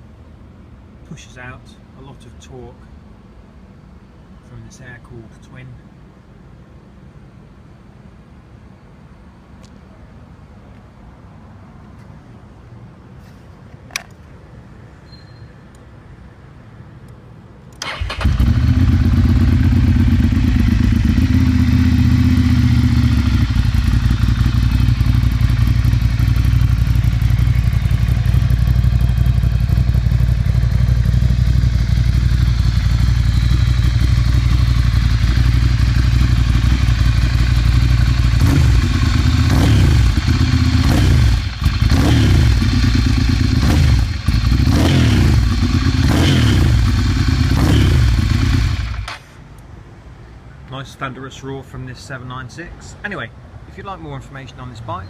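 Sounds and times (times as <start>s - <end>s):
motorcycle engine idling and revving: 17.8s - 49.5s.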